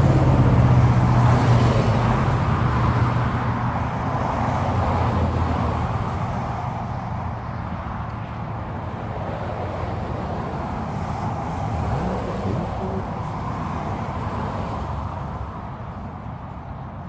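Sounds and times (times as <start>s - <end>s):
steady low traffic rumble: 0.0s - 17.0s
vehicle passing: 0.0s - 17.0s.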